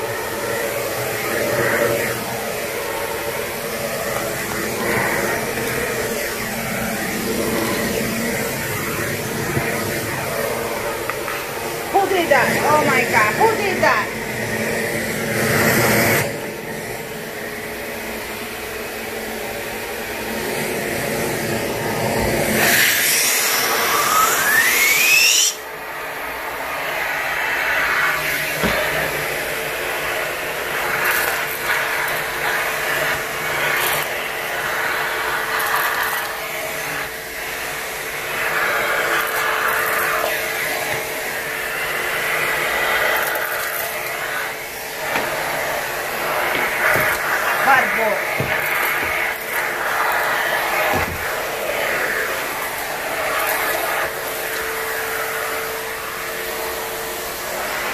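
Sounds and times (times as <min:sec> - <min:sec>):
rising vacuum whine: 0:00.0 - 0:57.9
vacuum cleaner running: 0:00.0 - 0:57.9
hose sucking up debris: 0:42.4 - 0:54.3.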